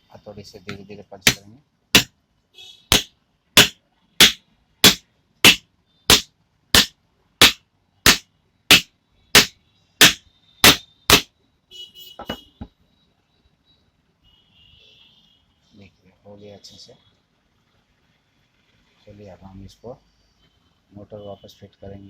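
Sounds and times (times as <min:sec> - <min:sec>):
plastic hammer tapping: 0:00.7 - 0:01.4, 0:02.9 - 0:11.3.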